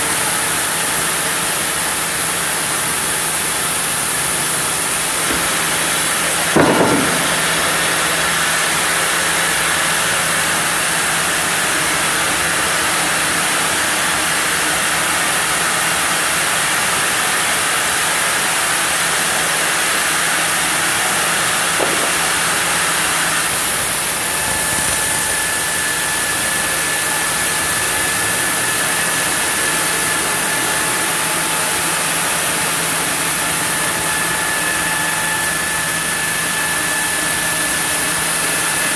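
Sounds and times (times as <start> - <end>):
sawmill saw cutting wood: 0.0 - 38.9
sharp knock: 5.2 - 8.0, 21.8 - 22.4.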